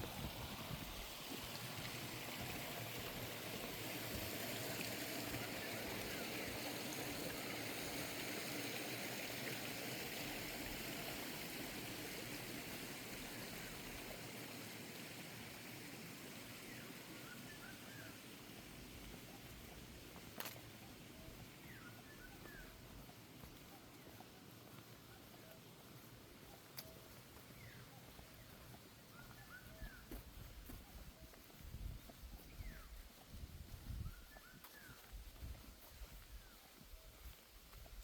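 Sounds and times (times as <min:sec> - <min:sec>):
flowing water rushing: 0:00.0 - 0:31.1.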